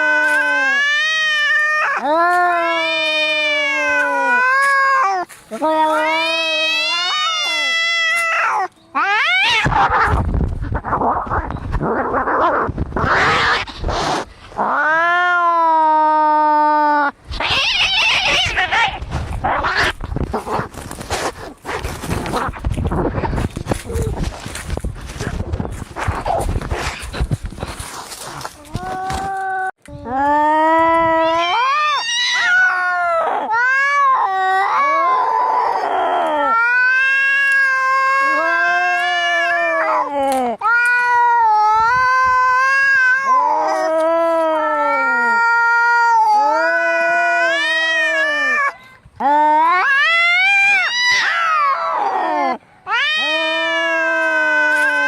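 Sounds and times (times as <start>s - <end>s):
cat yowling: 0.0s - 10.2s, 17.4s - 20.0s, 28.7s - 48.8s, 49.5s - 55.0s
cats hissing and screeching: 0.0s - 16.6s, 17.3s - 29.6s, 31.0s - 55.0s.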